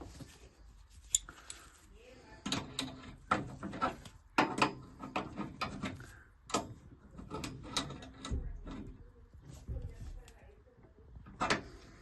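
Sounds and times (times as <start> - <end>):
tools clicking and knocking: 2.4 - 8.9.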